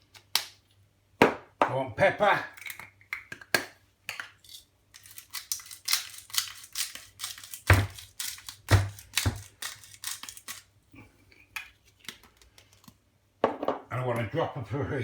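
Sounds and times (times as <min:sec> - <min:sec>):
pepper mill grinding: 0:04.1 - 0:10.8.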